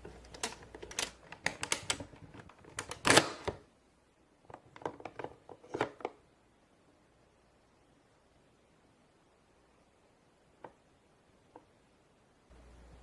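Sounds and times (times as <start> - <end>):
plastic toy parts clicking: 0.0 - 3.6.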